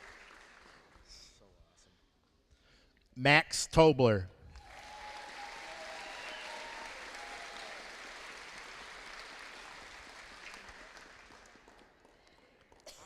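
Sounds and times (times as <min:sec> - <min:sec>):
audience applauding: 0:00.0 - 0:01.1, 0:04.6 - 0:12.5.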